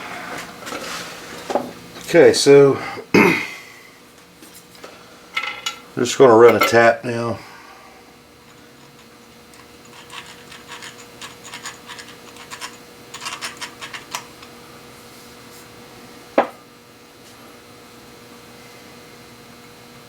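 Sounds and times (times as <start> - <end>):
small metal clicks and scratches: 8.4 - 14.5.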